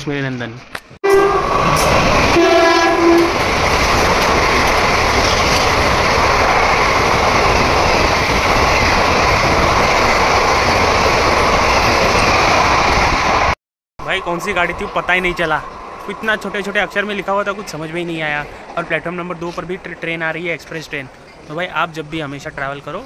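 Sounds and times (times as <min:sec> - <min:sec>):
train horn: 0:01.0 - 0:03.4
train coaches rushing past: 0:01.1 - 0:23.0.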